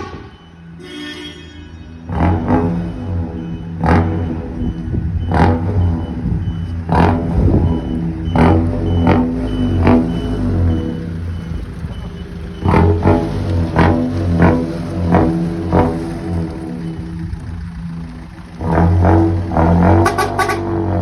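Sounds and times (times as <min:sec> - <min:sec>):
faint high beep: 0:00.0 - 0:04.9
engine-like exhaust rumble: 0:02.1 - 0:21.0.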